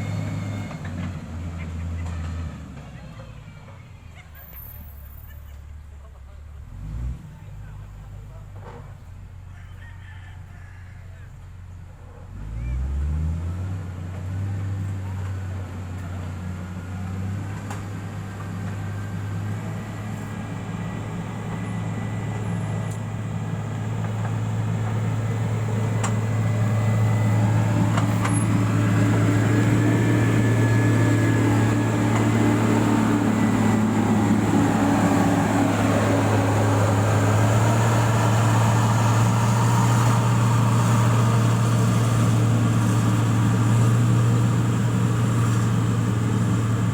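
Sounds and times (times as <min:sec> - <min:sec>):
construction machine engine running: 0:14.8 - 0:46.9.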